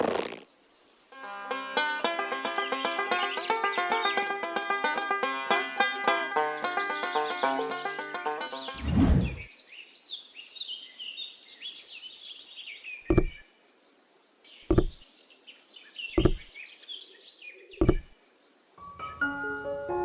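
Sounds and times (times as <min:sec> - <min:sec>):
birds chirping: 0:00.2 - 0:19.6
loud dull knocks: 0:13.1 - 0:13.4, 0:14.7 - 0:15.0, 0:16.2 - 0:16.5, 0:17.8 - 0:18.1
low thump: 0:13.1 - 0:13.4, 0:14.7 - 0:15.0, 0:16.2 - 0:16.5, 0:17.8 - 0:18.1.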